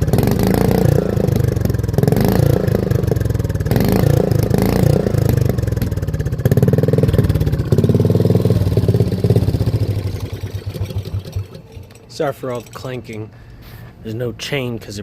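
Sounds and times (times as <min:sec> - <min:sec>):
mini bike engine revving: 0:00.0 - 0:11.9
sprocket clanking: 0:08.4 - 0:13.3.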